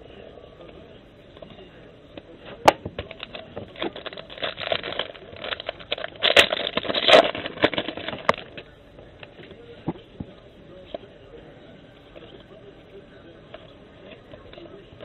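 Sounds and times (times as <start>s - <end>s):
cards being handled: 2.5s - 10.0s
foil pack crinkling: 2.6s - 8.7s.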